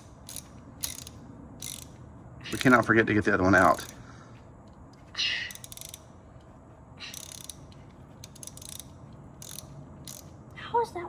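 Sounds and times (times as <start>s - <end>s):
ratchet wrench clicking: 0.0s - 2.9s, 3.6s - 4.0s, 5.4s - 10.4s.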